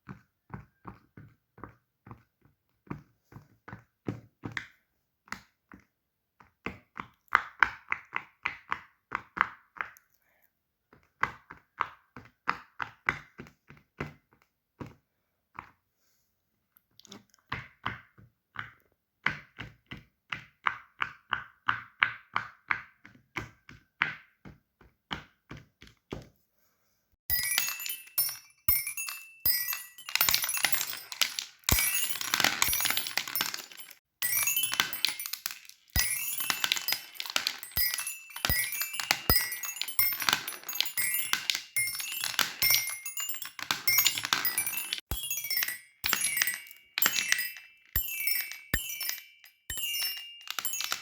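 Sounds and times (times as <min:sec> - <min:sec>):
fidget toys clicking: 0:27.5 - 0:51.0.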